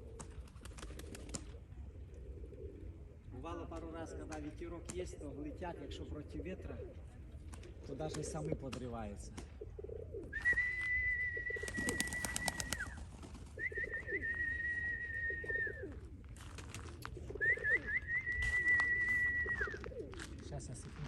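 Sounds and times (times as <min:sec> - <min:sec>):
pigeons cooing: 0:00.0 - 0:21.0
long whistled notes: 0:13.6 - 0:15.8.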